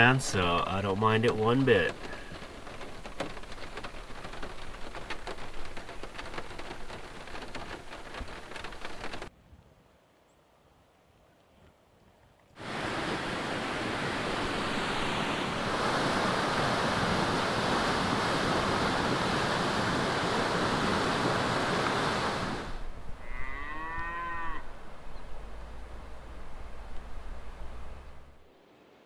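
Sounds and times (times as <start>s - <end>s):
steady rushing noise: 0.0s - 9.3s
cow mooing: 23.2s - 24.7s.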